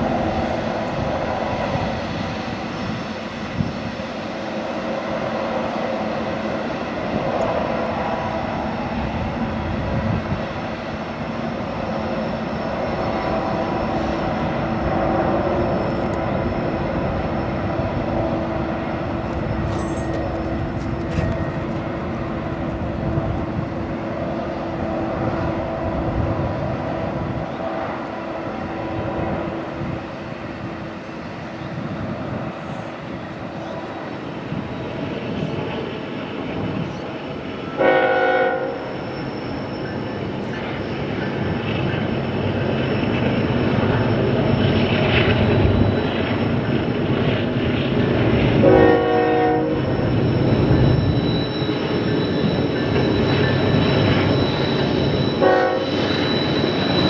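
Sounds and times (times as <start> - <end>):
freight train rumbling: 0.0 - 57.0
locomotive air horn: 37.8 - 38.9, 48.6 - 49.8, 55.4 - 55.9.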